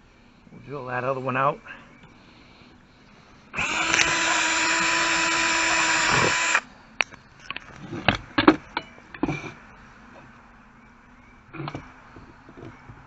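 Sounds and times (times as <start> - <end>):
electric drill running: 3.6 - 6.6.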